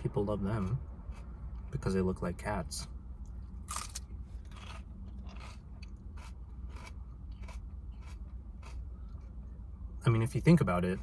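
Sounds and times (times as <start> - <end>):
steady low hum: 0.0 - 11.0
lettuce being chewed: 3.6 - 9.6.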